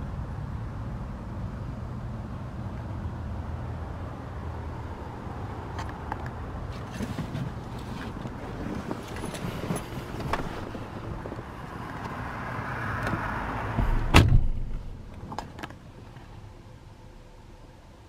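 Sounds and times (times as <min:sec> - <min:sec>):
rushing background noise: 0:00.0 - 0:17.9
car door shutting: 0:13.0 - 0:15.7.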